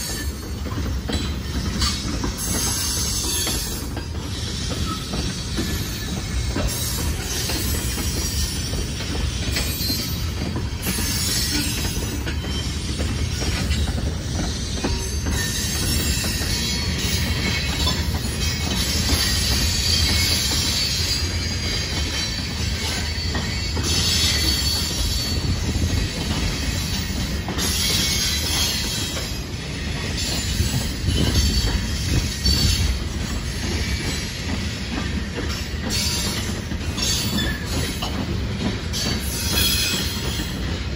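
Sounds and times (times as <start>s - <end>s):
train wheels rumbling: 0.0s - 40.9s
wheel on rail squeal: 0.0s - 40.9s.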